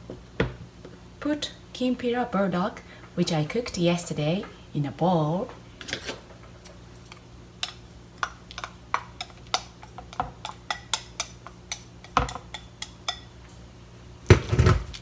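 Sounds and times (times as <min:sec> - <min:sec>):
utensil tapping a dish: 0:07.6 - 0:13.3.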